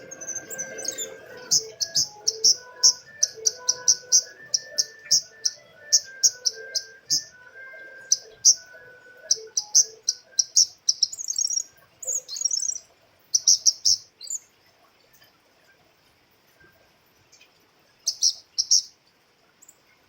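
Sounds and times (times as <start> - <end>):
bird sharp high chips: 0.0 - 7.3
bird buzzy trills: 0.0 - 14.5.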